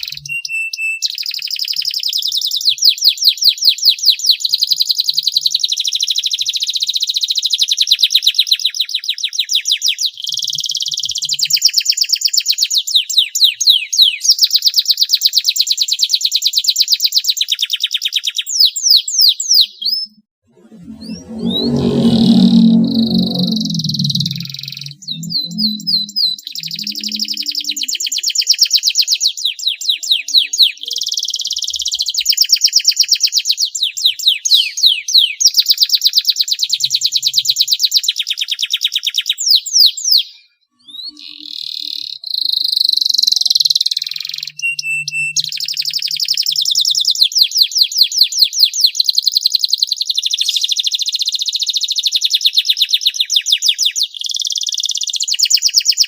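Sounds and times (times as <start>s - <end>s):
canary singing trills: 20.8s - 28.7s.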